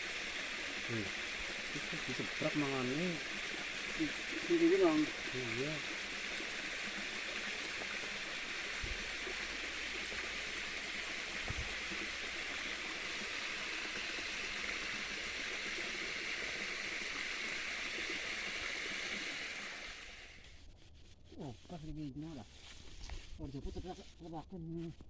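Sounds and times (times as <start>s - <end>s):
small stream flowing: 0.0s - 20.7s.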